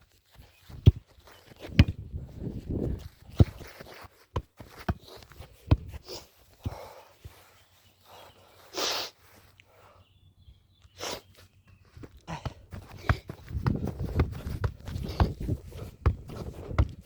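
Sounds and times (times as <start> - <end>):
football kicks: 0.7 - 6.0, 12.3 - 17.0.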